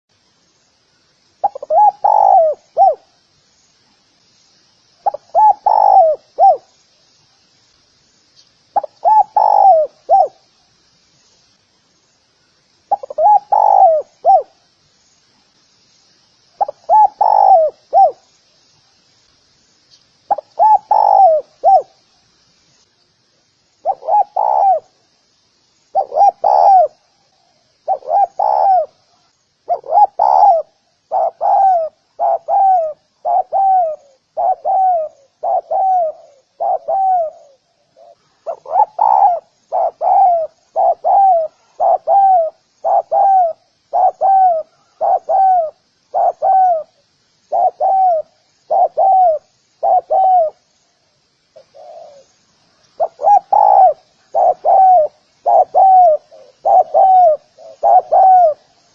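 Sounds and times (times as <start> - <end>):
dove cooing: 1.4 - 3.1, 5.0 - 6.7, 8.8 - 10.4, 12.9 - 14.6, 16.6 - 18.2, 20.3 - 21.9, 23.8 - 25.0, 25.9 - 27.0, 27.8 - 29.0, 29.7 - 50.6, 51.6 - 52.3, 53.0 - 58.7.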